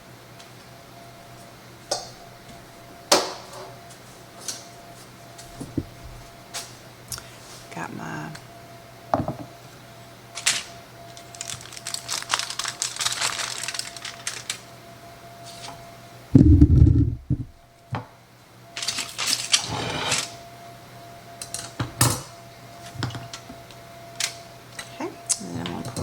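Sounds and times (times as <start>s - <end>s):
faint steady hum: 0.0s - 26.0s
loud low thump: 16.4s - 17.6s.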